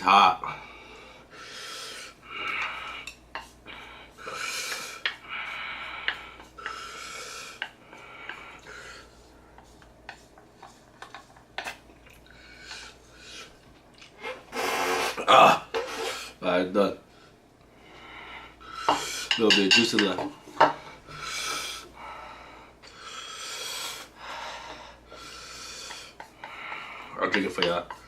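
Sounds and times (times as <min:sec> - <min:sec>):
heavy hissing breaths: 0:00.4 - 0:09.8, 0:12.3 - 0:13.6, 0:17.1 - 0:19.4, 0:20.6 - 0:27.3
utensils clicking and scraping bowl: 0:02.4 - 0:13.0, 0:18.8 - 0:20.7, 0:25.1 - 0:28.0
person sniffing: 0:14.2 - 0:16.4.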